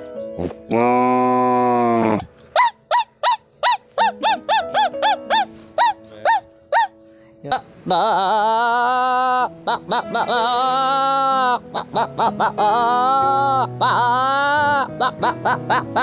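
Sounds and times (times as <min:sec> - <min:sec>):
background music: 0:00.0 - 0:16.0
man imitating animal calls: 0:00.4 - 0:06.9, 0:07.5 - 0:16.0.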